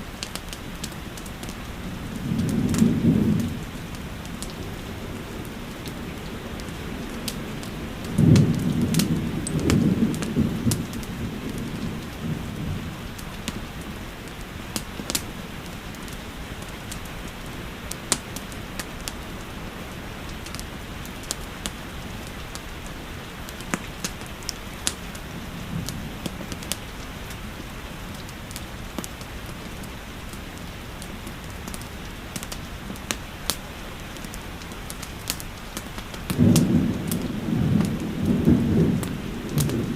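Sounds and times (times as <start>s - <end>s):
steady rain: 0.0s - 39.9s
wood fire crackling: 0.0s - 39.9s
thunder rumbling: 0.8s - 15.8s, 25.0s - 27.7s, 35.8s - 39.9s.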